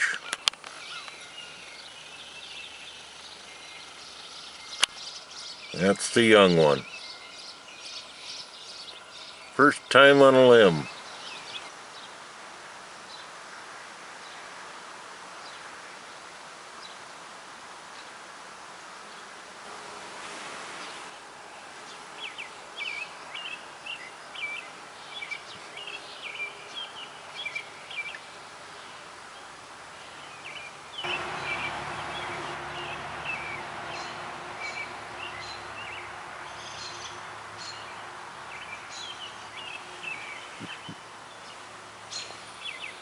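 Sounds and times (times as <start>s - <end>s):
birds chirping: 0.0s - 12.2s, 21.8s - 43.0s
outdoor hiss: 0.0s - 43.0s.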